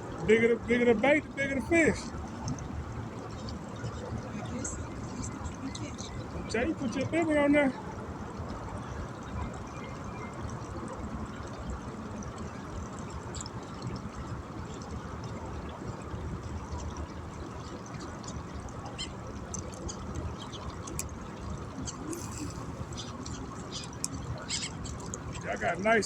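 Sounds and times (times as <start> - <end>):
rushing outdoor noise: 0.0 - 26.0.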